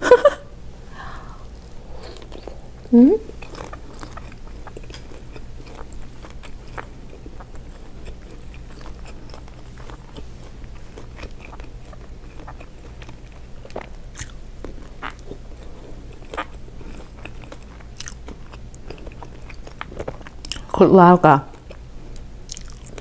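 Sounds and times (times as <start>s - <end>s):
low hum: 0.0s - 4.0s
chewing and biting: 1.4s - 20.8s, 21.4s - 23.0s.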